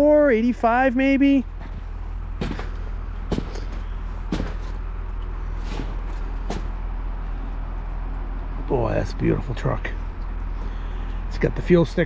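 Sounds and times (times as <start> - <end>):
steady low rumble: 0.0 - 12.0
footsteps crunching in snow: 1.5 - 6.8.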